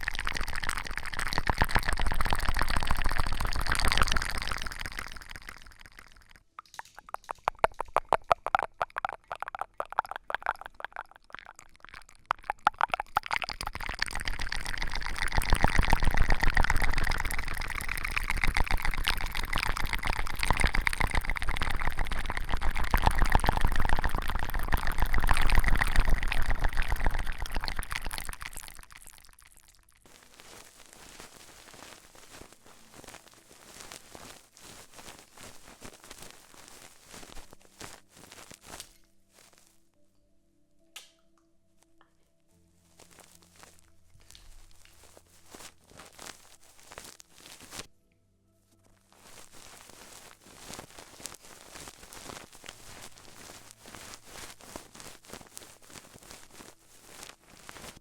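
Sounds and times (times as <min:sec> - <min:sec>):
dense crackling: 0:00.0 - 0:34.4.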